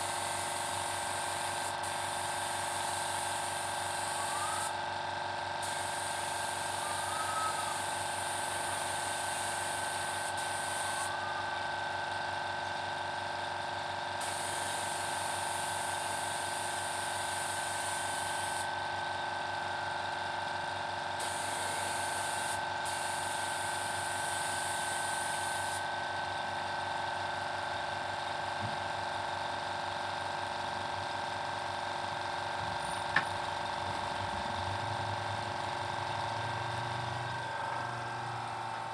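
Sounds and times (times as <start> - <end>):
spray gun hissing: 0.0 - 4.7, 5.6 - 11.1, 14.2 - 18.7, 21.2 - 25.8.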